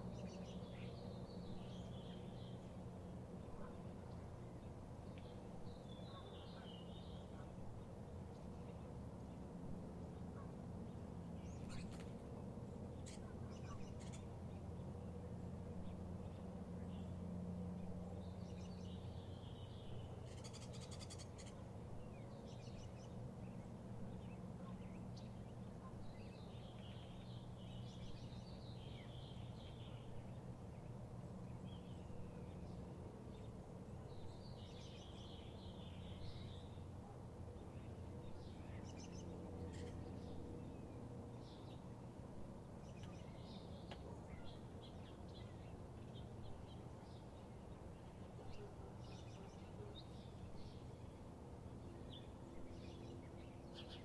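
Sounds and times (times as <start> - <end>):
steady low hum: 0.0 - 54.0
bird chirps and calls: 13.0 - 14.3, 20.2 - 21.6.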